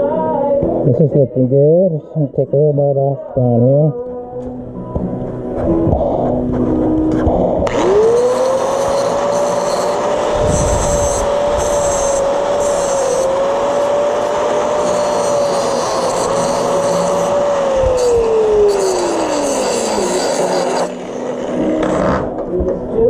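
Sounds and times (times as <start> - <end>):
angle grinder grinding metal: 7.3 - 22.4.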